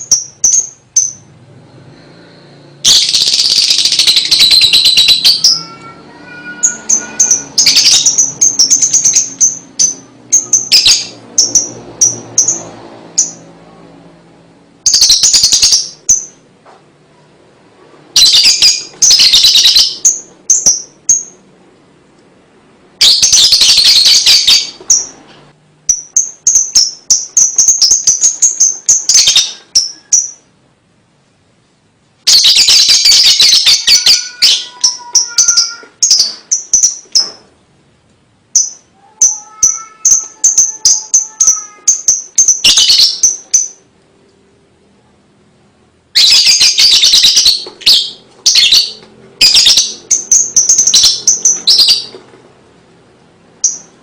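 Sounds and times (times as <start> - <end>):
lovebird chattering: 2.8 - 13.5, 14.9 - 16.4, 18.2 - 21.4, 23.0 - 25.2, 25.9 - 30.5, 32.3 - 37.3, 38.5 - 43.9, 46.2 - 52.2, 53.6 - 54.0.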